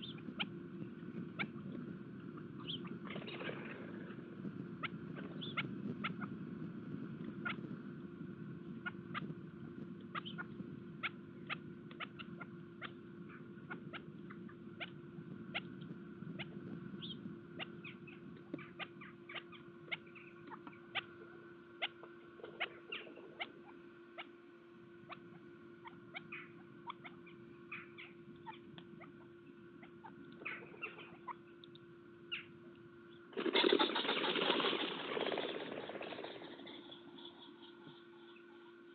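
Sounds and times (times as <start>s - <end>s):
birds pecking seed: 0.0s - 6.3s, 25.1s - 38.6s
low hum: 0.0s - 38.9s.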